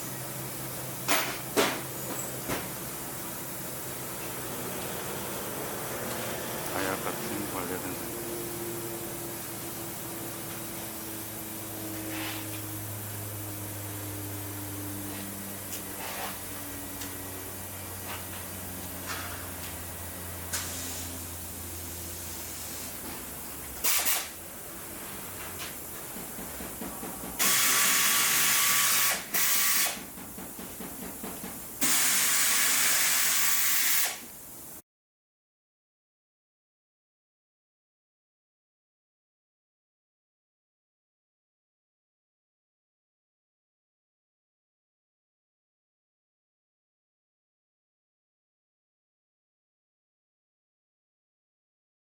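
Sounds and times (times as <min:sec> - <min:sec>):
workshop machinery humming: 0:00.0 - 0:34.8
compressed air hissing: 0:06.8 - 0:12.8, 0:20.5 - 0:23.0, 0:23.8 - 0:26.0, 0:27.3 - 0:30.2, 0:31.8 - 0:34.7.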